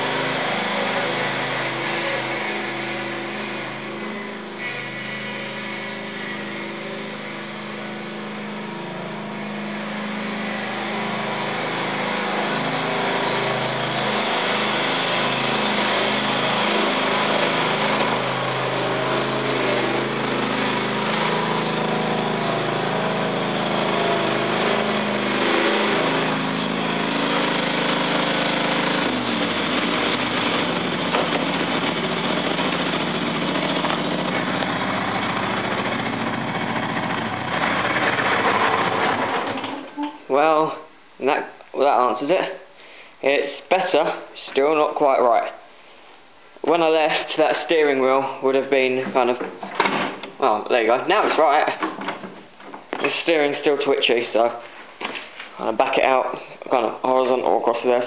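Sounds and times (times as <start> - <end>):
small tractor engine running: 0.0 - 40.0.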